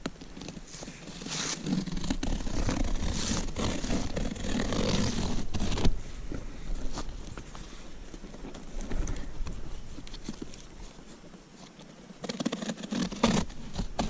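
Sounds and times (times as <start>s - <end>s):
cardboard box being cut and torn: 1.0s - 6.0s, 12.2s - 14.0s.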